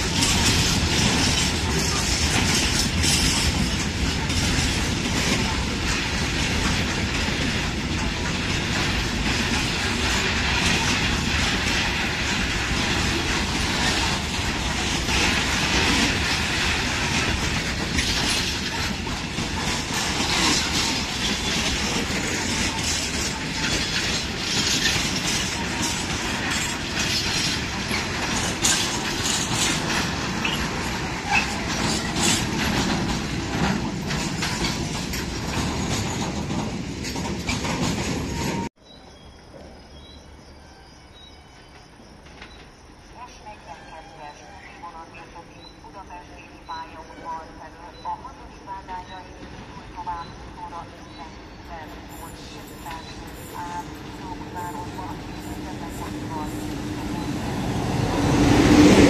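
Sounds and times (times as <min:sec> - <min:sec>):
wheels clicking over rail joints: 0:00.0 - 0:38.7
train wheels rumbling on rails: 0:00.0 - 0:38.8, 0:41.1 - 0:59.0.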